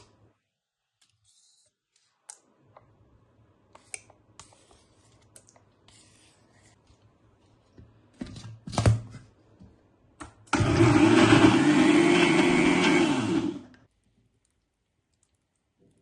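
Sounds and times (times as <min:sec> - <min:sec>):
electric blender running: 0:10.5 - 0:13.8.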